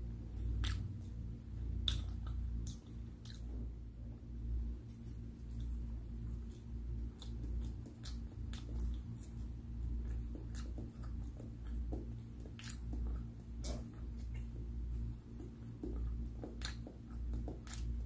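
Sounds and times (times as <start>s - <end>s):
person chewing food: 0.3s - 3.7s, 4.9s - 18.0s
mouth clicks: 0.6s - 1.1s, 1.8s - 3.5s, 6.5s - 9.4s, 15.8s - 17.9s.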